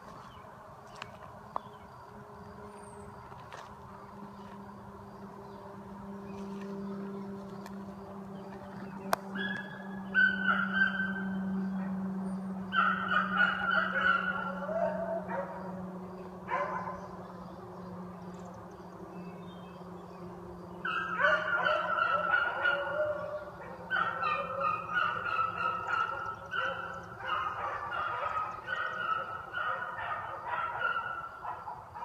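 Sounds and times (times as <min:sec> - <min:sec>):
steady low hum: 0:00.0 - 0:32.0
hounds baying: 0:08.5 - 0:17.3, 0:20.8 - 0:32.0.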